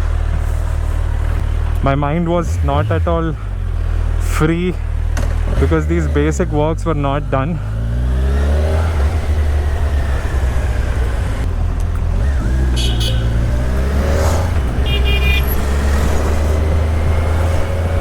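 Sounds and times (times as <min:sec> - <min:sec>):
motorcycle engine running: 0:00.0 - 0:18.0
vehicle horns tooting: 0:12.7 - 0:13.6, 0:14.7 - 0:15.7.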